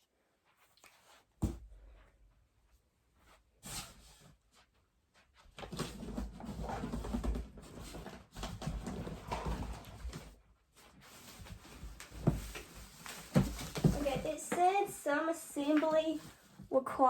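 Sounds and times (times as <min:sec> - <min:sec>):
cardboard box being handled: 0:11.0 - 0:14.9.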